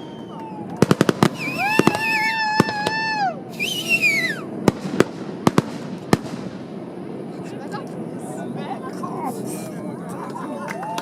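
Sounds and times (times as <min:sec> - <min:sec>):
firework whistles: 0:00.0 - 0:05.0
firework bangs: 0:00.0 - 0:07.3.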